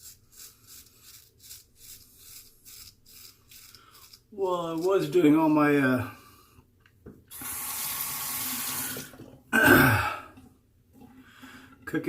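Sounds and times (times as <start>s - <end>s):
sink tap running: 7.3s - 9.3s.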